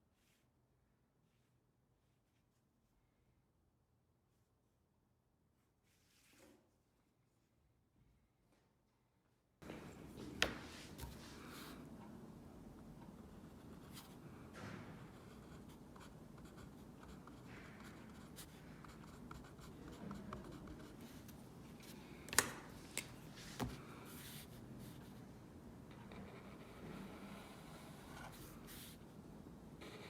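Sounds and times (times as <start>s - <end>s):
pencil scratching on paper: 15.0s - 21.4s, 25.9s - 29.0s, 29.8s - 30.0s.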